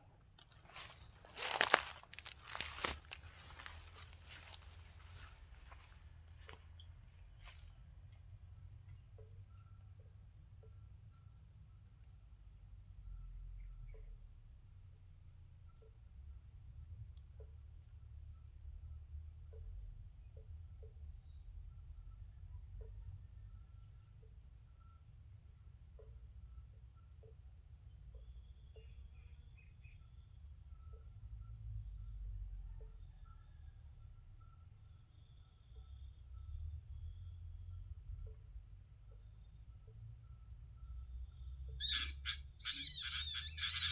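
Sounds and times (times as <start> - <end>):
high-pitched insect drone: 0.0 - 7.6, 39.6 - 43.9.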